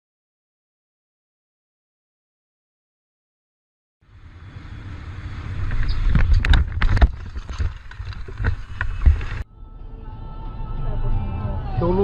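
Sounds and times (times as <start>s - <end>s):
road and wind noise: 4.0s - 9.5s.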